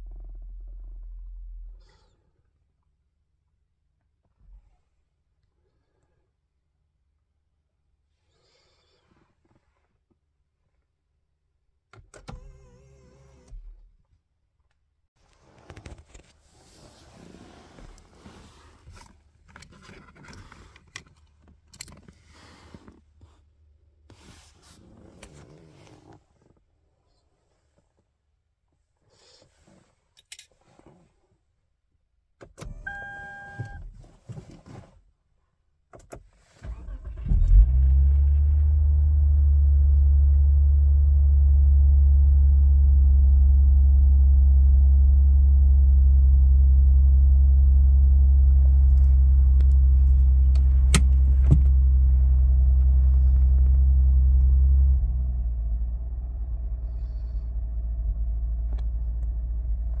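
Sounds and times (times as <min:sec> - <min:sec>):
short beep: 0:32.9 - 0:33.8
car engine cranking and idling: 0:36.0 - 1:00.0.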